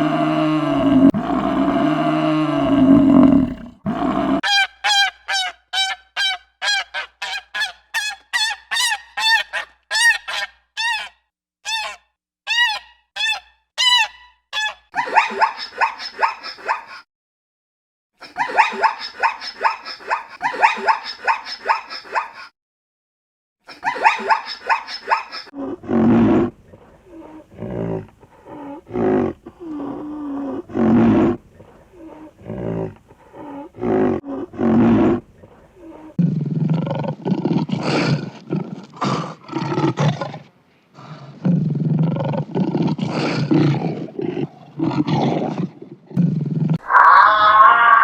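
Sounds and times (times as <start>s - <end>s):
leopard grunting: 0.0s - 4.4s, 25.7s - 47.3s.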